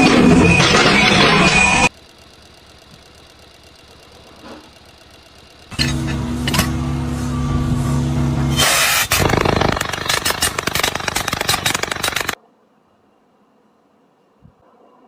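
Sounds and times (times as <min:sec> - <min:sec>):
engine running: 0:00.0 - 0:12.4
clattering and rattling: 0:09.0 - 0:12.4.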